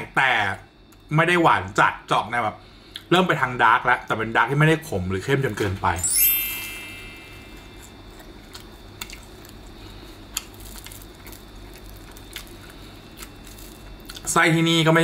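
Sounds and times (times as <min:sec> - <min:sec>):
high ringing tone: 0:05.9 - 0:08.2
person chewing pastry: 0:07.7 - 0:14.3
pastry crackles: 0:07.9 - 0:14.6.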